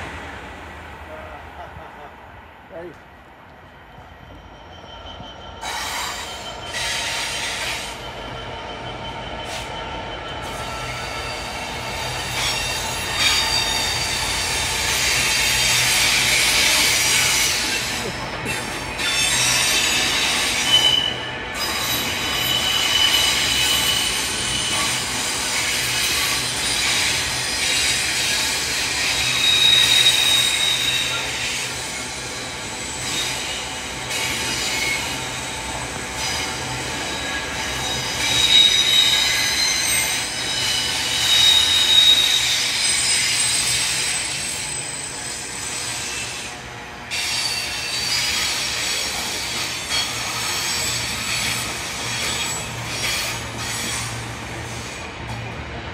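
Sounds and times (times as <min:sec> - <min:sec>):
freight train wagons rolling: 0:03.8 - 0:55.6
high-pitched wheel squeal: 0:04.0 - 0:17.9, 0:18.7 - 0:35.3, 0:36.2 - 0:46.5.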